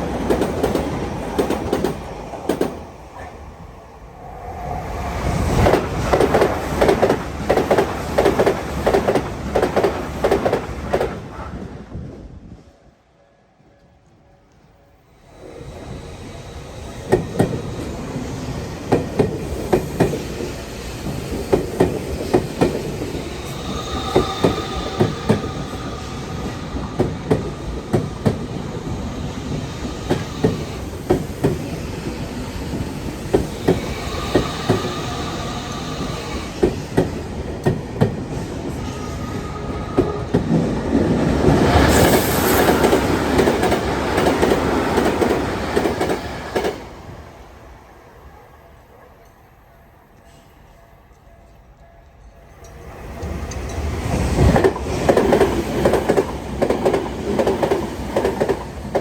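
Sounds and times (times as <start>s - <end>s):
train wheels clicking over rail joints: 0.0s - 2.9s, 17.0s - 38.9s
train rushing past: 0.0s - 13.8s, 14.7s - 48.8s, 52.4s - 59.0s.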